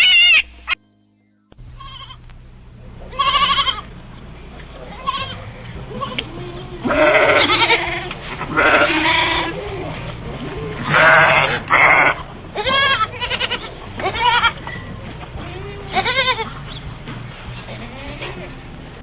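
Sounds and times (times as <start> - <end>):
goats bleating: 4.8 - 19.0.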